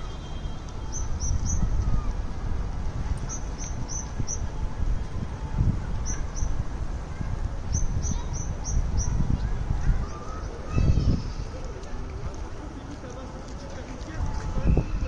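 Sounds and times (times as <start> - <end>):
small bird chirping: 3.2 - 4.5, 7.7 - 9.3.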